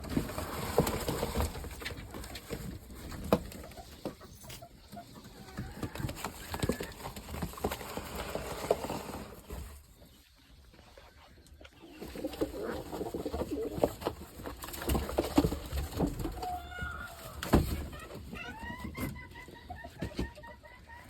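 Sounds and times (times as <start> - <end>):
pigeons tapping and scuffling: 0.0 - 21.0
pigeons cooing: 11.8 - 14.0.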